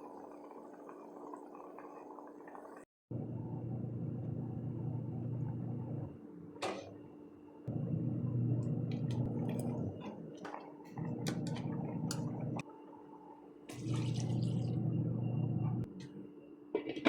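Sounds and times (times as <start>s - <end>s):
running water: 13.7s - 14.8s.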